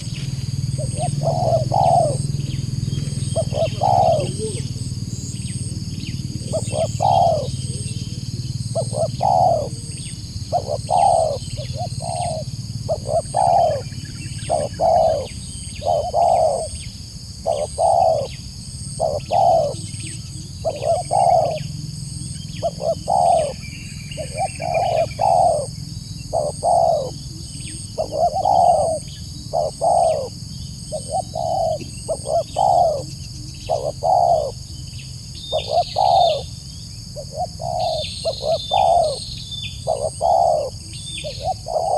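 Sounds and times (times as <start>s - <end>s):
dove cooing: 0.0s - 41.9s.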